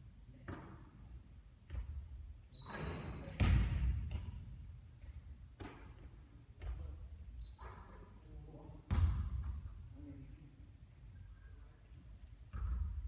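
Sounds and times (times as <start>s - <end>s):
basketball bouncing on court: 1.7s - 2.2s, 3.4s - 4.5s, 8.9s - 9.6s
shoe squeaks on floor: 2.5s - 3.4s, 5.0s - 5.6s, 7.3s - 8.2s, 10.9s - 13.0s.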